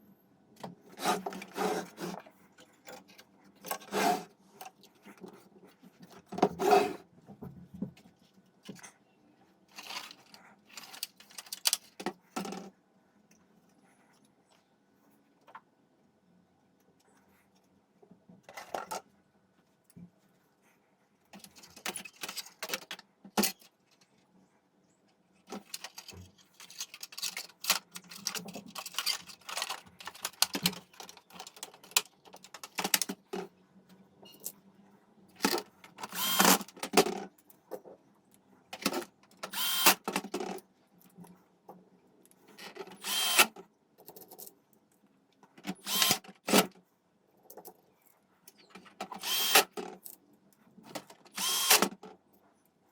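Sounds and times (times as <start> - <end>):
tool whirring and scraping: 0.8 - 2.4, 3.7 - 4.4, 6.4 - 7.1, 35.9 - 36.7, 39.5 - 40.0, 42.6 - 43.6, 45.8 - 46.7, 49.0 - 49.8, 51.3 - 51.9
small parts clicking and rattling: 9.7 - 12.7, 21.3 - 24.2, 25.4 - 33.4.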